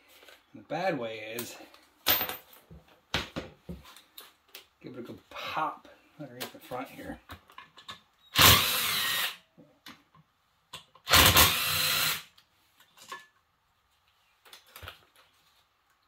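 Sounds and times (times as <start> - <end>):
impact wrench bursts: 8.3 - 9.4, 11.1 - 12.3.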